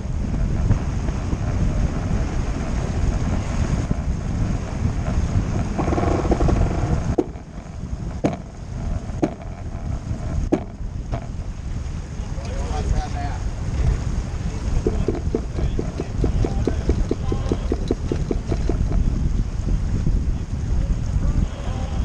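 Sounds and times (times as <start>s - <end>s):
water rushing past hull: 0.0s - 22.0s
wind buffeting microphone: 0.0s - 22.0s
sharp knocks: 5.6s - 11.5s, 14.8s - 19.1s.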